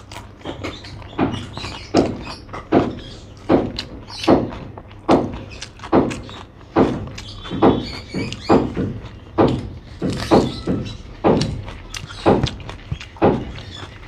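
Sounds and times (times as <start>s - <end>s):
chewing thumps: 0.0s - 14.0s.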